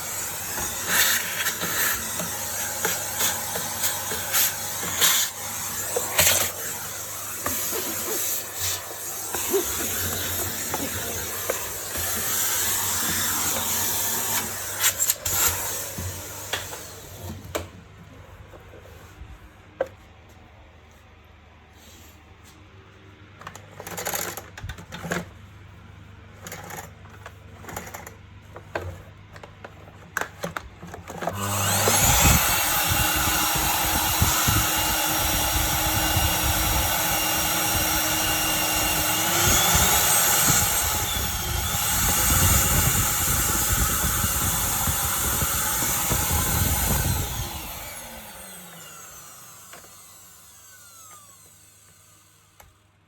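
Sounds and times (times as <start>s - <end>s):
vacuum cleaner motor whining: 0.0s - 17.8s, 30.2s - 53.0s.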